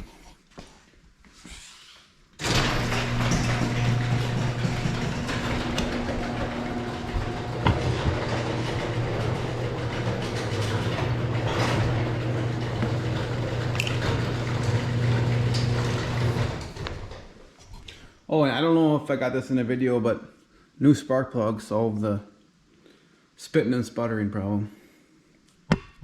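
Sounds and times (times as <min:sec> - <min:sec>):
single-cylinder engine running: 0:02.4 - 0:16.5.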